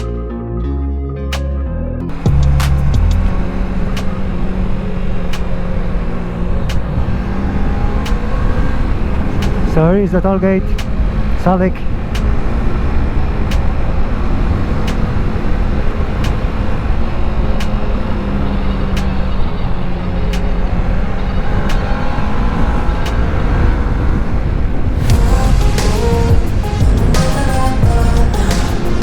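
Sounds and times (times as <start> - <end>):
music: 0.0 - 4.1, 25.0 - 29.0
wind and road noise: 2.1 - 29.0
motorcycle engine running: 25.0 - 29.0.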